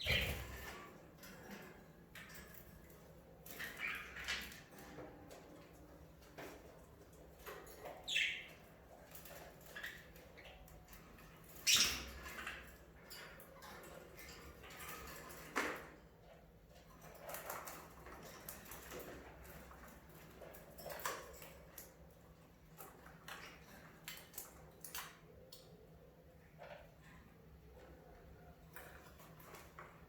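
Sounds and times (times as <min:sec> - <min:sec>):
budgerigars chirping: 0:00.0 - 0:00.5.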